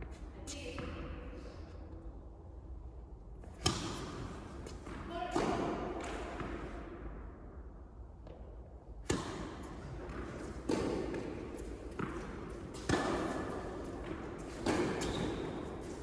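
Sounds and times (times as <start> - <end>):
racket hitting tennis ball: 3.5 - 6.8, 9.0 - 16.0
tennis ball bouncing: 3.5 - 6.8, 9.0 - 16.0.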